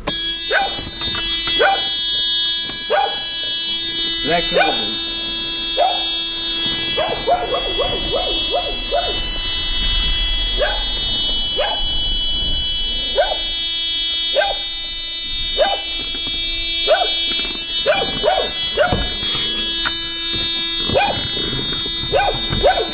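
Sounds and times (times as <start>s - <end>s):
high-pitched electrical whine: 0.0s - 22.9s
dog barking in yips: 0.4s - 0.9s, 1.6s - 2.0s, 2.9s - 3.3s, 5.7s - 6.1s, 6.8s - 9.3s, 13.2s - 13.4s, 14.4s - 14.7s, 15.6s - 16.0s, 16.9s - 17.2s, 17.8s - 19.3s, 20.9s - 21.3s, 22.1s - 22.9s.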